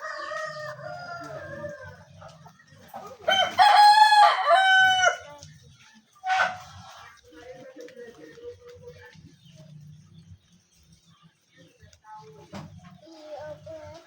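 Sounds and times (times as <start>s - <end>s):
rooster crowing: 3.3s - 5.2s.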